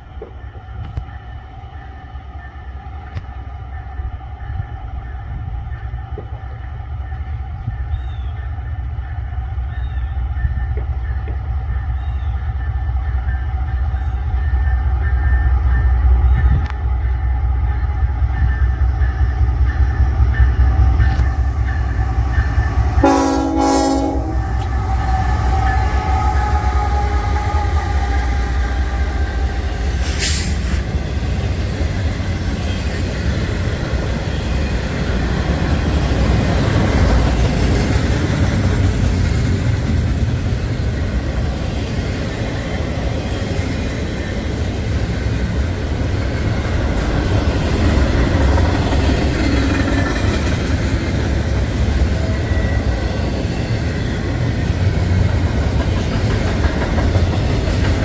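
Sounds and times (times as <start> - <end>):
train wheels rumbling: 0.0 - 58.0
train horn blast: 21.8 - 30.8.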